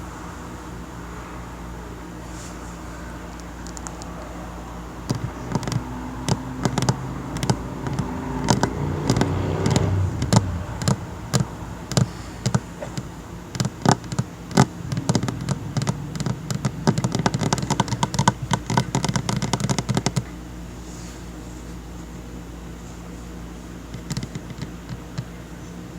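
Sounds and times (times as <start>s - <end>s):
tapping on a tabletop: 5.1s - 11.0s.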